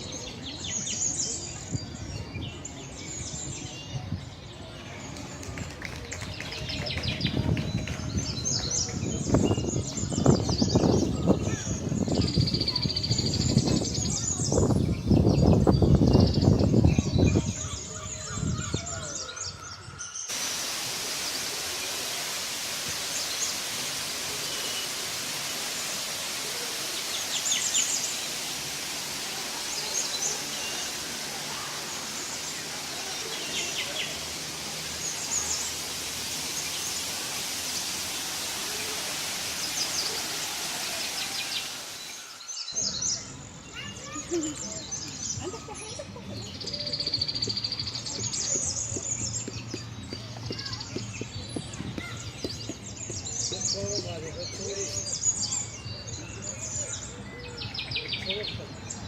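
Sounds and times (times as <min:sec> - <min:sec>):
small birds chirping: 0:00.0 - 0:59.0
steady background hiss: 0:20.2 - 0:46.6.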